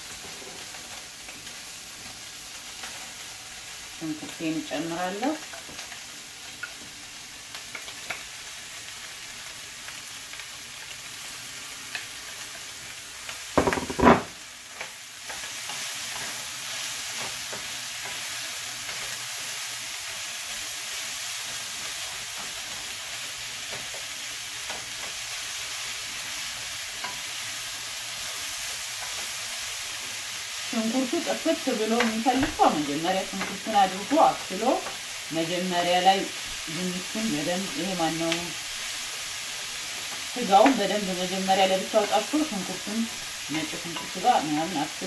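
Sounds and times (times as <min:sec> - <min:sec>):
meat and onions sizzling in a pan: 0:00.0 - 0:45.0
wooden spoon stirring in a pan: 0:13.3 - 0:45.0
loud knocks: 0:13.6 - 0:14.3.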